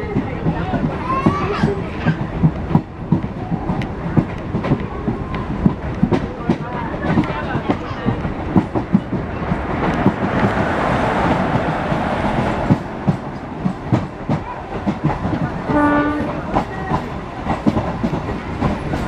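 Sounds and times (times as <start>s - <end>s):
train cars rattling and clanking: 0.0s - 19.0s
train rumble: 0.0s - 19.0s
train horn blast: 15.7s - 16.4s.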